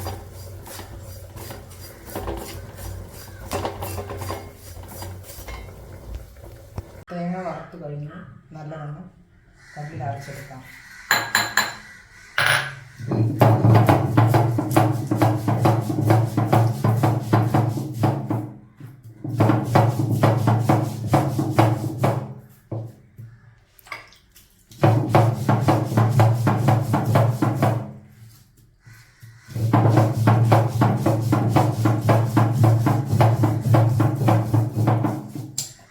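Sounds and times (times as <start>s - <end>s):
stone roller rubbing: 0.0s - 7.0s.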